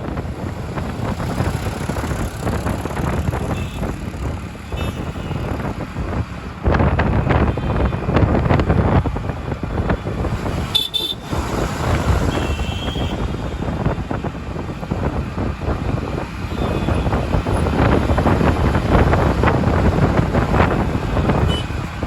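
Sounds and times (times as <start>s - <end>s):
road traffic: 0.0s - 22.0s
vehicle horn toots: 4.7s - 5.6s, 10.7s - 11.3s, 12.2s - 13.3s, 21.4s - 21.8s.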